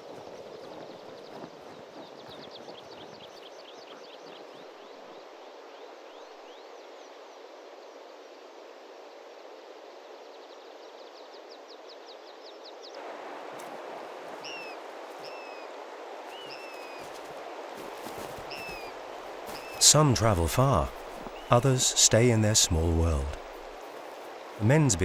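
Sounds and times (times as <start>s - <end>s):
rushing outdoor background: 13.0s - 25.0s
falling whistled calls: 14.4s - 15.7s, 16.3s - 17.2s, 18.1s - 23.8s
small bird trilling chirps: 18.4s - 19.8s.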